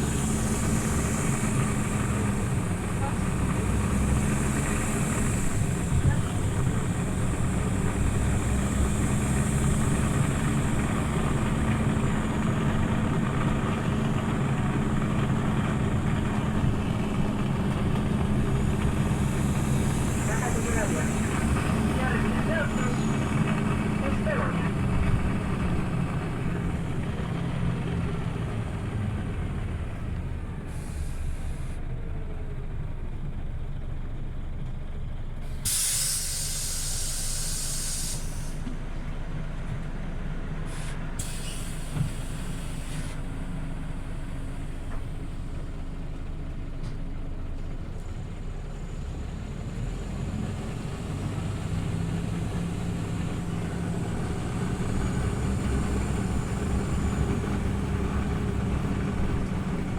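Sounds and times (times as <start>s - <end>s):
compressed air hiss: 0.0s - 2.7s, 35.6s - 38.6s, 40.7s - 43.2s, 54.1s - 59.9s
bus engine rumbling: 0.0s - 59.9s.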